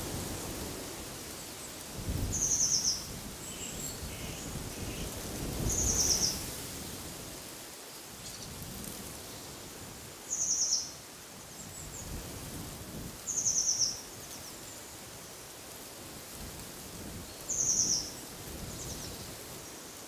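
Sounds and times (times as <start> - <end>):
wind through trees: 0.0 - 20.0.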